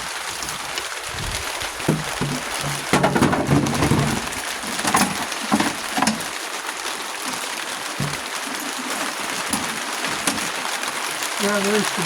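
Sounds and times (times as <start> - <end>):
heavy rain hissing: 0.0 - 12.0
parts knocking and clattering: 1.7 - 6.4, 8.0 - 8.7, 9.4 - 10.5.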